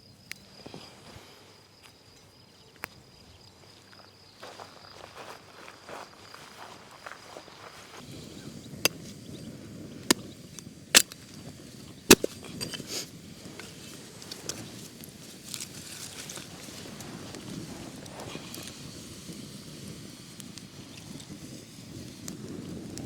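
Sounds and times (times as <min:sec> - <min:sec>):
low steady crackle: 0:08.2 - 0:23.0
wood cracking: 0:12.1 - 0:12.8.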